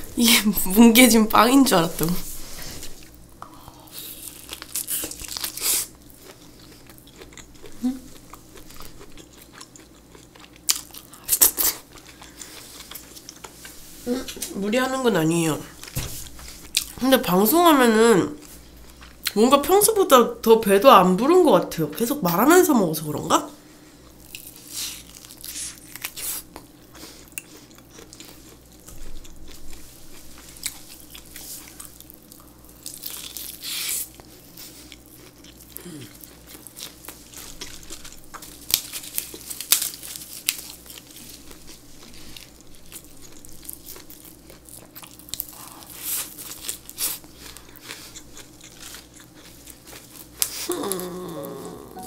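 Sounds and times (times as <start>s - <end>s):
biting and chewing: 3.0s - 13.8s, 24.1s - 51.6s
crisp crunches: 35.2s - 51.6s.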